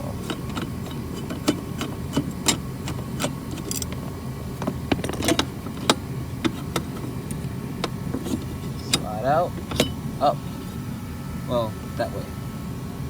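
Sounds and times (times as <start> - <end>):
steady low hum: 0.0 - 13.0
screwdriver clicking on screws: 0.2 - 8.0.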